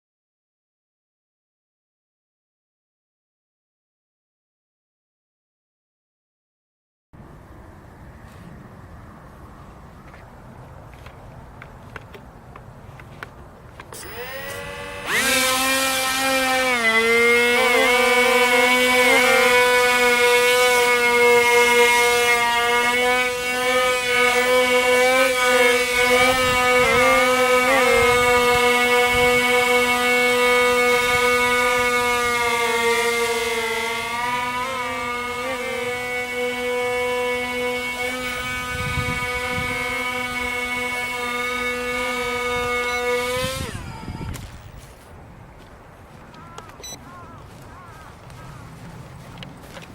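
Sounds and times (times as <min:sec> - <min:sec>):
small propeller motors whining: 0:13.0 - 0:45.2, 0:46.0 - 0:49.9.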